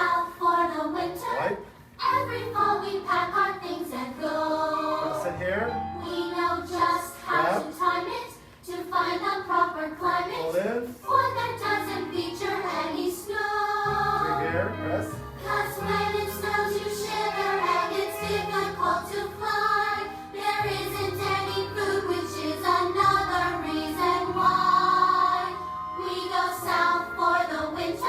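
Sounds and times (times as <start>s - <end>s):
young voices singing in chorus: 0.0s - 14.6s, 15.4s - 28.0s
instrumental accompaniment: 11.1s - 28.0s.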